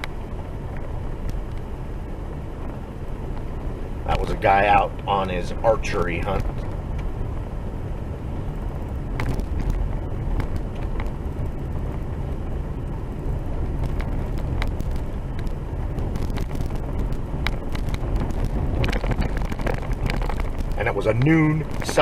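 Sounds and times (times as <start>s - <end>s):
road rumble inside vehicle: 0.0s - 22.0s
knocks and rattles: 13.7s - 22.0s.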